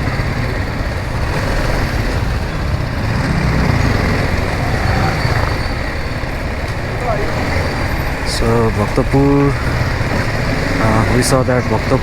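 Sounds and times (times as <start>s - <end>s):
city traffic: 0.0s - 12.0s
motorcycle engine running: 0.0s - 12.0s.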